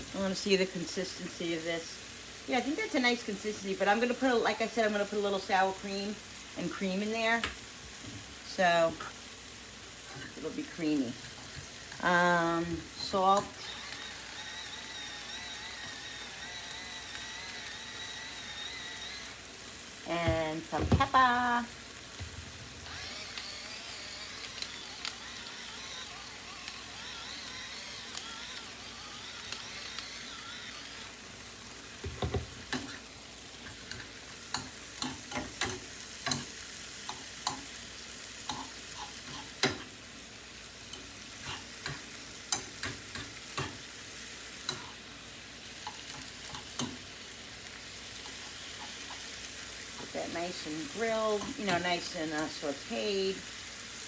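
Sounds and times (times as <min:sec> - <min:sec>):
chicken sizzling in a frying pan: 0:00.0 - 0:54.0
utensil scraping a pan: 0:41.0 - 0:43.8.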